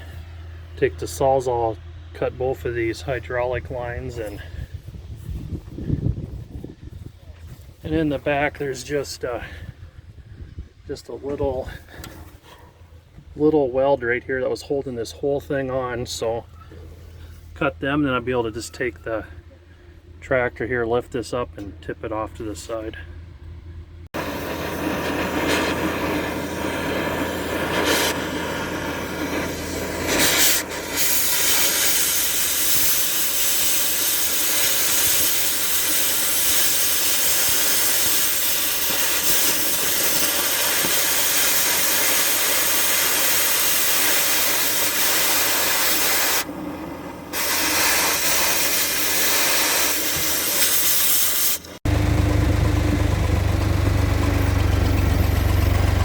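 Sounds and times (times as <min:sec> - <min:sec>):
cutting torch hissing: 0:24.2 - 0:51.8.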